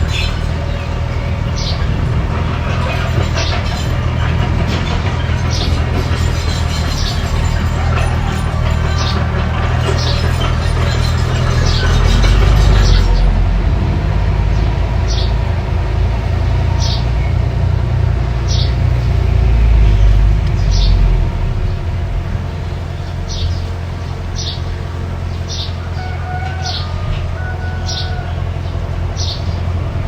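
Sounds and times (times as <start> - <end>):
bulldozer engine rumbling: 0.0 - 30.0
bird chirping: 20.5 - 21.8, 22.6 - 27.0.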